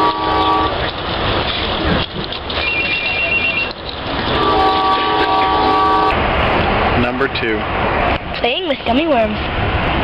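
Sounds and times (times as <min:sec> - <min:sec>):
train rumble inside carriage: 0:00.0 - 0:10.0
high two-tone ringing: 0:02.6 - 0:03.8.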